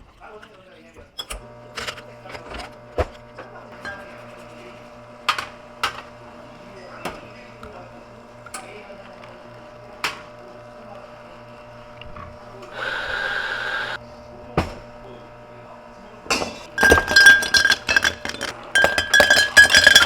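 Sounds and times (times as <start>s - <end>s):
low machine hum: 1.4s - 20.0s
ice and glassware clinking: 16.3s - 20.0s.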